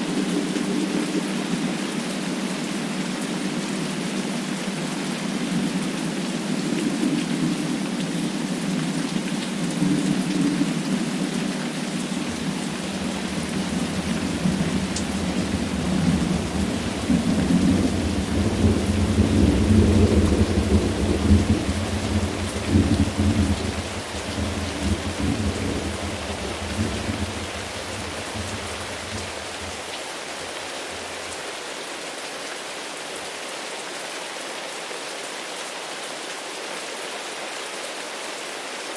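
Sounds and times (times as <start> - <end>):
steady rain: 0.0 - 38.9
rolling thunder rumble: 9.8 - 29.9.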